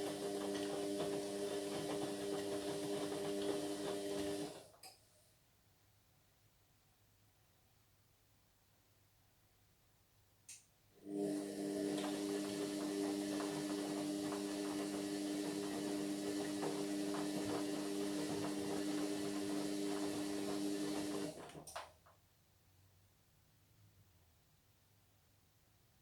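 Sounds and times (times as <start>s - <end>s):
washing machine humming: 0.0s - 4.8s, 11.0s - 21.8s.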